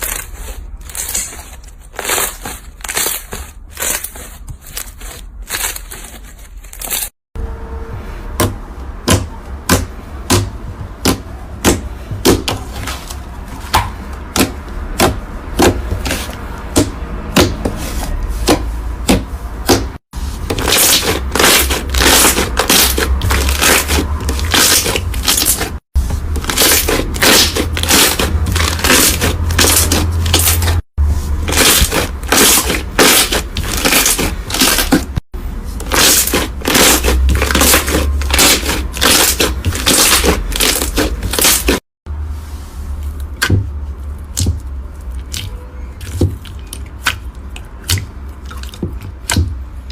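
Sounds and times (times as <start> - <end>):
crunchy slime crackling: 0.0 - 7.1, 19.6 - 41.8.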